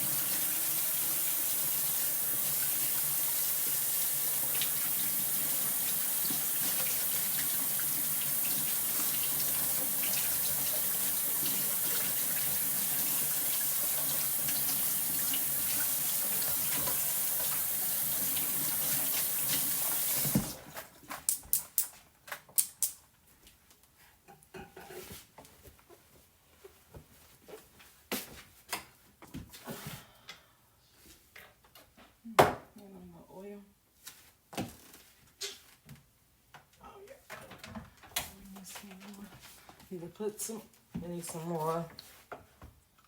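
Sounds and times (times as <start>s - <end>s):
tap water running into sink: 0.0s - 20.6s.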